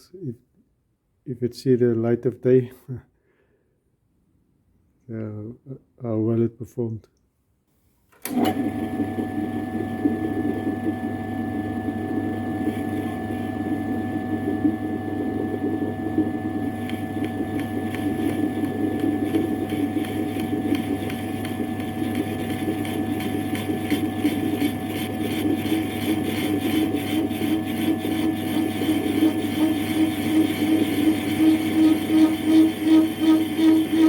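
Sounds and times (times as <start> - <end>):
metal lathe humming: 16.6 - 34.0
tool cutting with fast crackle: 16.8 - 34.0.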